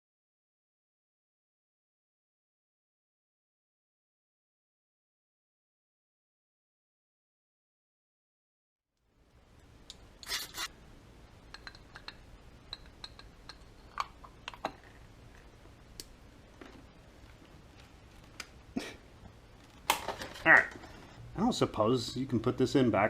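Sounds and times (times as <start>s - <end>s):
faint steady hum: 9.0s - 23.0s
small parts clicking and scraping: 9.9s - 10.7s.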